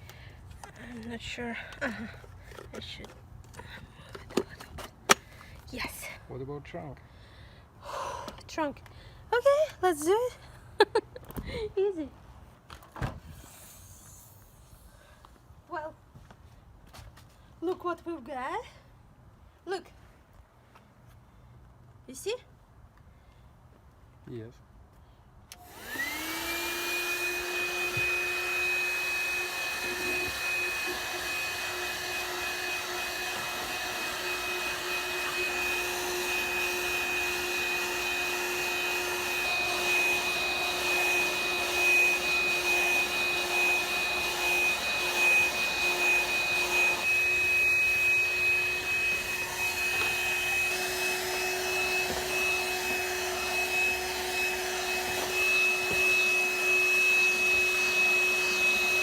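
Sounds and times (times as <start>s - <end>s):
handheld vacuum motor whine: 0.0s - 4.8s, 13.2s - 15.1s, 25.5s - 59.0s.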